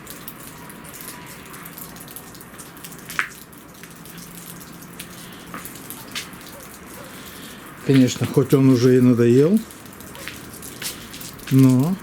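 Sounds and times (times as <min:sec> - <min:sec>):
water dripping: 0:00.0 - 0:12.0
wet snow pattering: 0:00.0 - 0:12.0.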